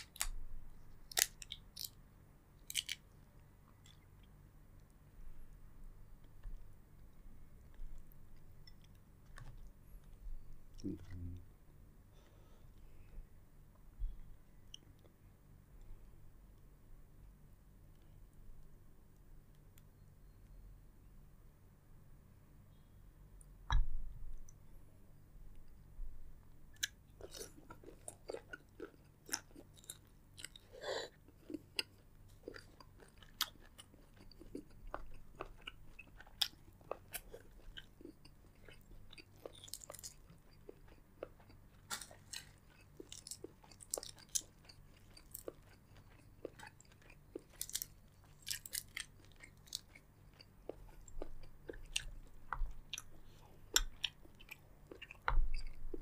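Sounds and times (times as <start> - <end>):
close chewing crunches: 26.8 - 56.0.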